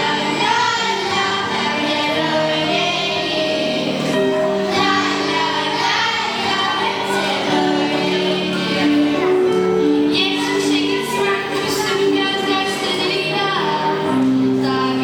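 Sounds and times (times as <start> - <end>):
children's choir singing: 0.0 - 15.0.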